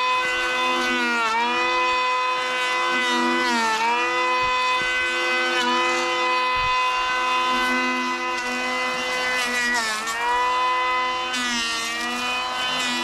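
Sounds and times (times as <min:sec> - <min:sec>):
motor running at high speed: 0:00.0 - 0:13.0.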